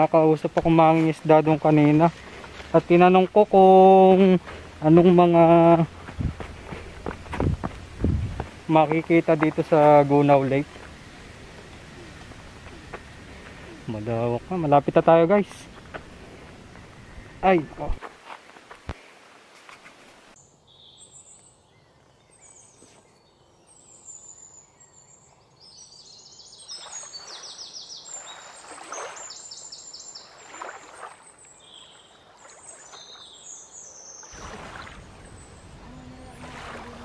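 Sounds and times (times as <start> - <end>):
faint outdoor hush: 3.6 - 20.4
birds chirping and trilling: 8.6 - 18.0, 20.4 - 37.0.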